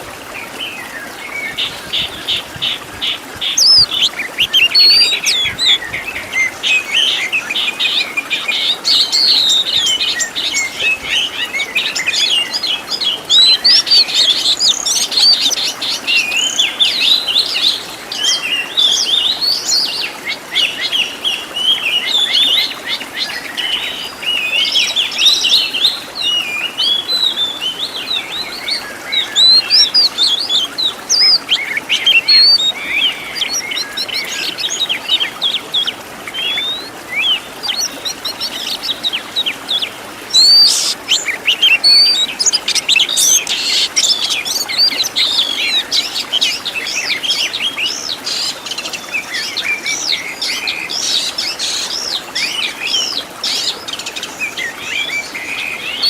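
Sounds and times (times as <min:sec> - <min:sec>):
bird singing whistles and trills: 0:03.4 - 0:17.6, 0:20.5 - 0:48.6.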